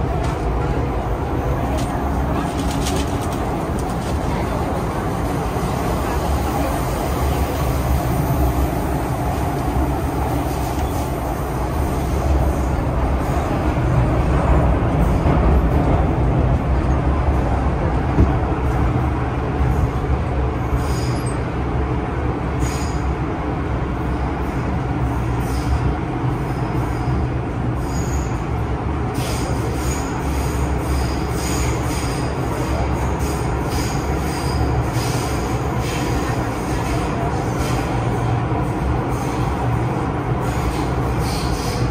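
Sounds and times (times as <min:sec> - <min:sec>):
train rumbling: 0:00.0 - 0:41.9.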